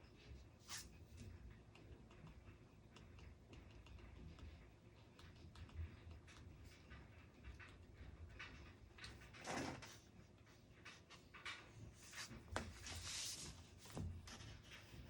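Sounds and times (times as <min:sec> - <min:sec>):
paper rustling: 0:12.0 - 0:14.0.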